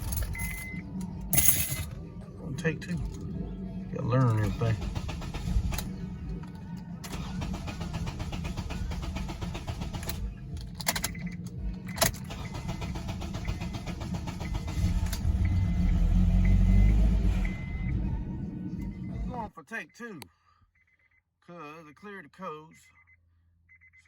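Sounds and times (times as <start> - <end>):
starter motor cranking engine: 4.0 - 18.0.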